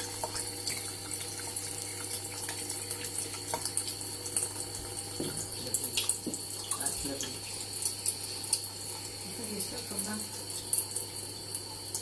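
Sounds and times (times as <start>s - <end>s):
tap running into sink: 3.4s - 7.4s.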